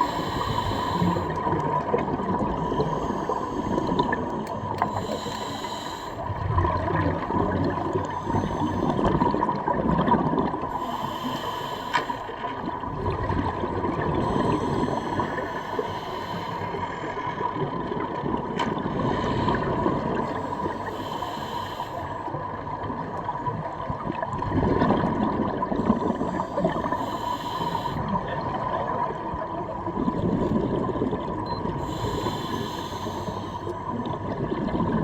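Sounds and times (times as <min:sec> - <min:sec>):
diver breathing through regulator: 0:00.0 - 0:01.6, 0:02.4 - 0:06.4, 0:08.0 - 0:09.4, 0:10.7 - 0:12.4, 0:14.1 - 0:17.3, 0:19.0 - 0:22.4, 0:25.8 - 0:28.2, 0:31.7 - 0:34.2
exhaled bubbles rising: 0:01.2 - 0:04.8, 0:06.2 - 0:10.8, 0:12.6 - 0:14.8, 0:23.9 - 0:26.8, 0:28.0 - 0:31.8, 0:33.9 - 0:35.0.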